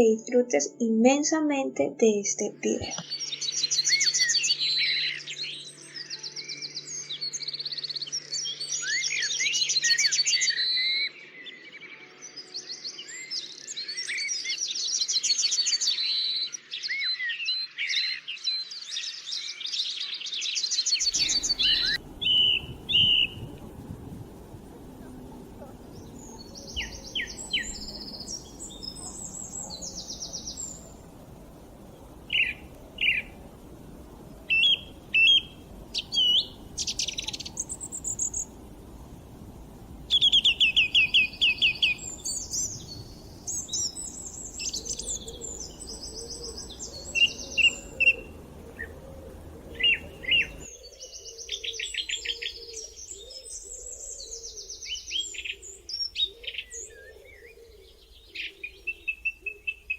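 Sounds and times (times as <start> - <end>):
songbirds singing and chirping: 0.0 - 59.9
low background rumble: 21.1 - 50.7.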